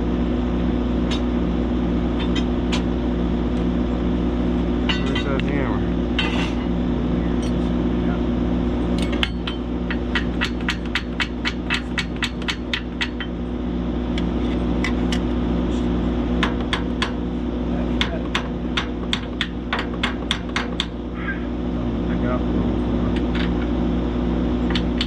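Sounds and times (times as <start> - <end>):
hammer striking metal: 4.8 - 5.4, 9.0 - 13.3, 18.0 - 21.0.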